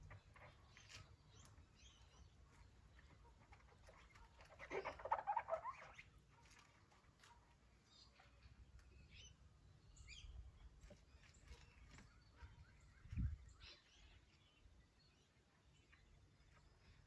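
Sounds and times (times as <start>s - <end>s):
rapid chattering bird calls: 0.0s - 6.7s
birds chirping faintly: 0.0s - 17.0s.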